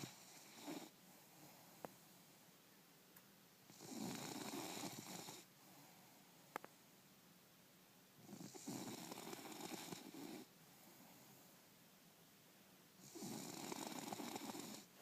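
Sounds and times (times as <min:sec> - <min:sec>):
dog snoring: 0:00.0 - 0:01.7, 0:03.7 - 0:05.8, 0:08.2 - 0:10.5, 0:13.0 - 0:15.0.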